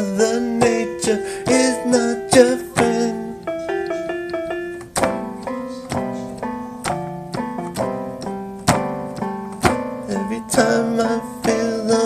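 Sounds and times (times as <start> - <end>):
keyboard playing piano chords: 0.0 - 12.0.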